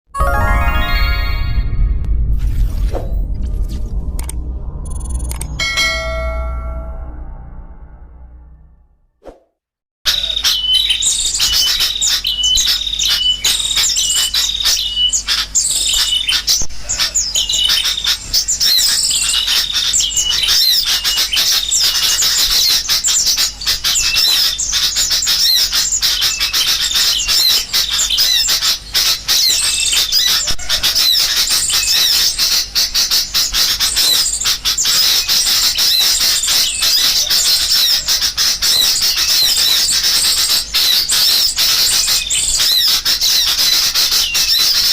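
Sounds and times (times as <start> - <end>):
bulbuls calling noisily: 10.1 - 44.9
small songbirds chattering: 10.1 - 44.9.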